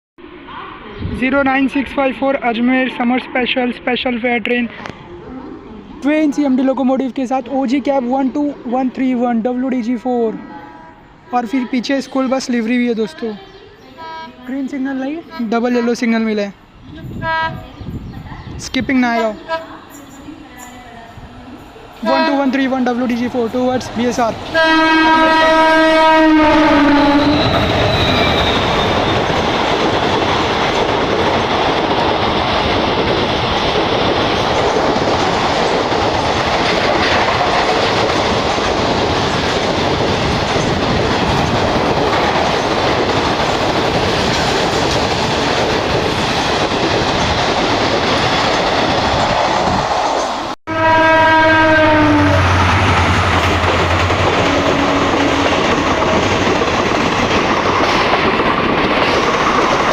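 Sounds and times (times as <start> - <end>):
diesel locomotive horn: 13.9 - 14.5, 17.0 - 17.6, 19.2 - 19.9, 22.0 - 22.6, 24.5 - 28.8, 50.7 - 55.7
coaches clattering on rails: 27.4 - 50.4, 53.0 - 59.9.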